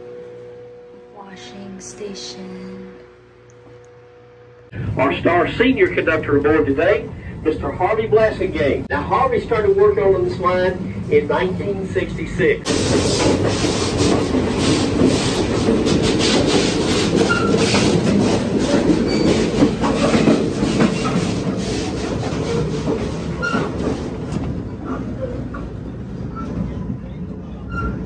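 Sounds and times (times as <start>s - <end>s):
train wheels clattering on track: 12.7s - 28.0s.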